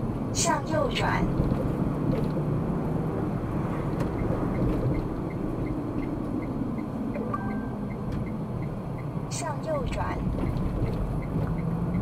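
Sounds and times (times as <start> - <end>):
car road and engine rumble: 0.0 - 12.0
turn signal ticking: 3.8 - 12.0.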